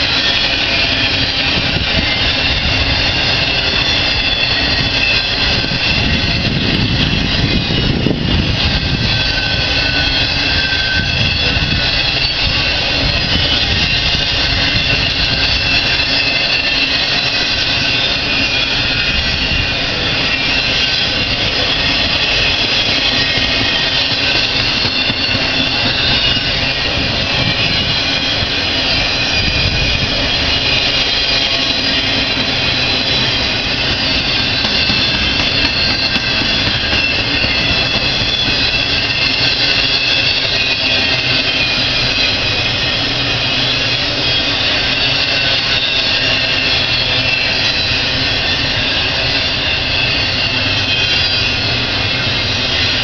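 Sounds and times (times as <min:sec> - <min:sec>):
steel wheels rushing on rail: 0:00.0 - 0:53.0.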